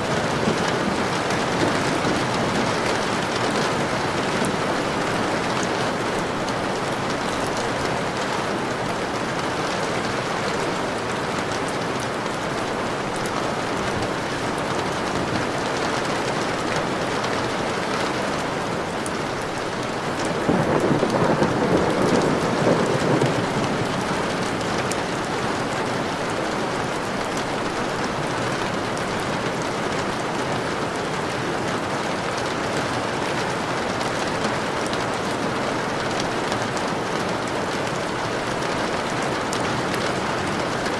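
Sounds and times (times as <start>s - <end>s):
thunder rolling: 0.0s - 6.7s, 20.0s - 26.0s
steady rain: 0.0s - 40.9s.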